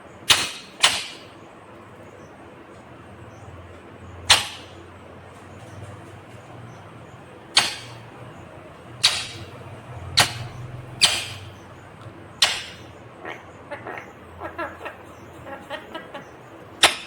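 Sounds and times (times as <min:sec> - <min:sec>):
parrot screeching: 0:12.4 - 0:17.0.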